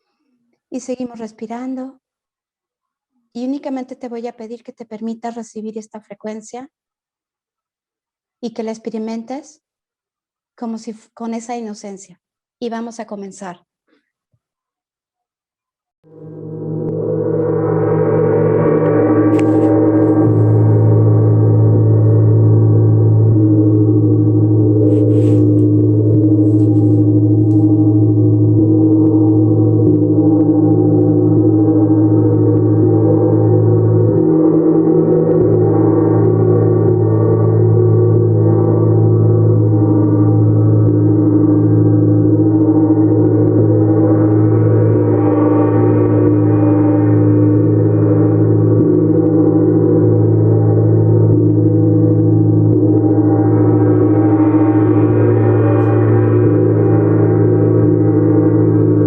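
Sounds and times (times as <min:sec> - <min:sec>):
gong ringing: 0:16.1 - 0:59.0.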